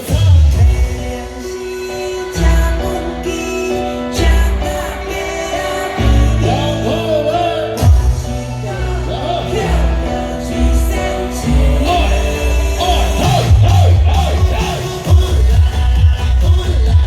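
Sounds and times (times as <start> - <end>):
live band music: 0.0 - 17.0
person singing: 0.0 - 17.0
steady bass beat: 12.8 - 17.0.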